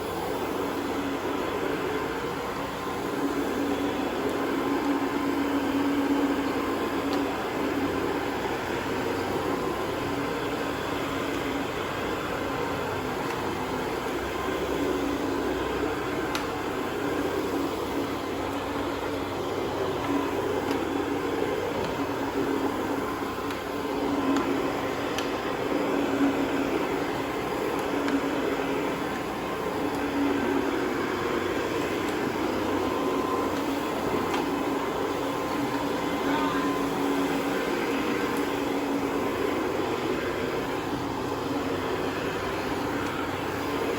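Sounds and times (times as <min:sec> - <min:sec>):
carpet cleaning machine humming: 0:00.0 - 0:43.9.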